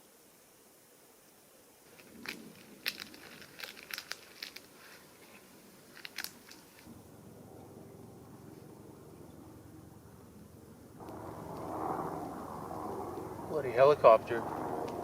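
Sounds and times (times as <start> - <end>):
sharp crunches and crinkles: 1.8 - 6.9
helicopter drone: 6.9 - 15.0.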